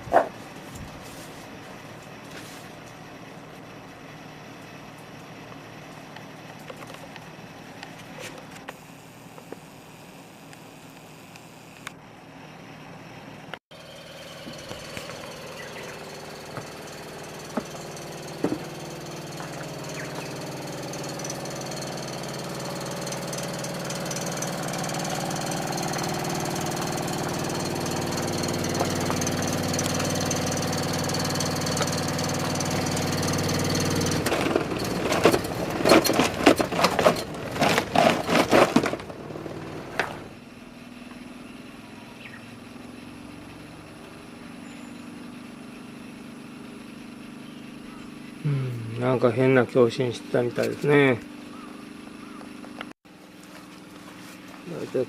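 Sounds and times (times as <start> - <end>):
air conditioner rattling vibration: 13.8 - 40.4.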